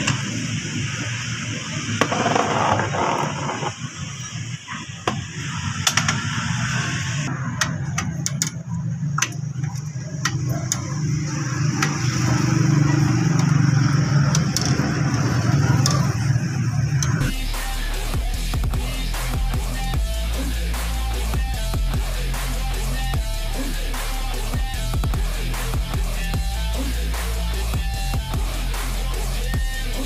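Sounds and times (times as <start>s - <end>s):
metal tools clicking: 7.6s - 11.1s.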